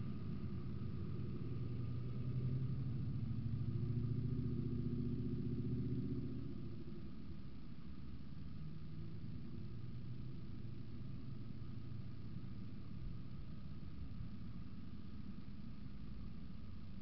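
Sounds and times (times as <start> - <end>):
car engine hum: 0.0 - 17.0
car road noise rumble: 0.0 - 17.0.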